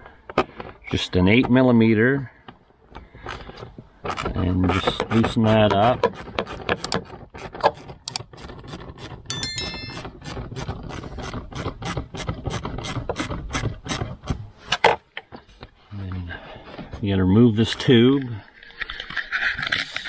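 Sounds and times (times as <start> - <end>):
short metallic ring: 9.3 - 10.2.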